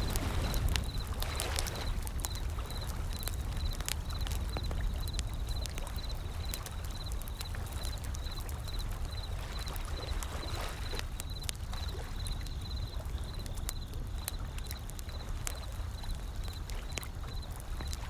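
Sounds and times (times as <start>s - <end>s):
ocean waves: 0.0s - 3.2s
wood fire crackling: 0.0s - 18.0s.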